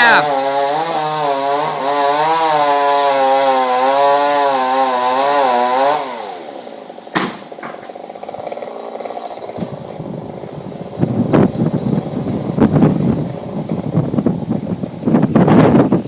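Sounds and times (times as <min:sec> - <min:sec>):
chainsaw cutting wood: 0:00.0 - 0:16.0
sharp knock: 0:07.2 - 0:07.4.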